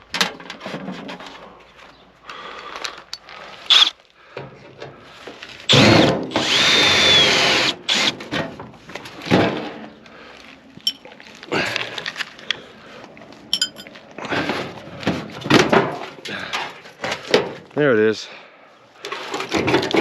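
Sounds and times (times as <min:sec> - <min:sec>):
power drill whirring: 0:03.6 - 0:03.9, 0:05.7 - 0:08.2.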